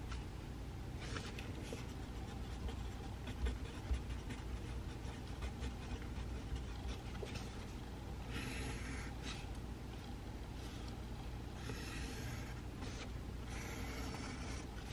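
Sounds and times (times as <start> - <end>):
low room hum: 0.0 - 14.9
pencil writing on paper: 1.1 - 9.4, 11.6 - 14.9.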